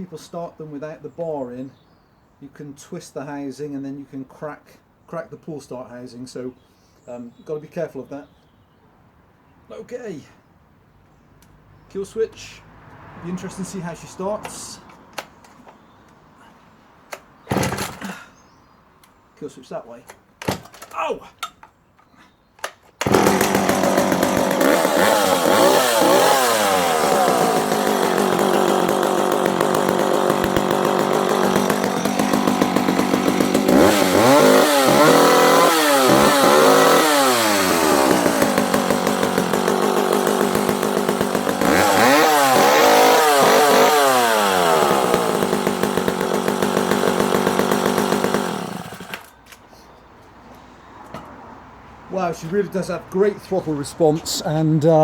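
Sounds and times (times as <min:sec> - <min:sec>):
chainsaw running and revving: 0:23.0 - 0:49.3.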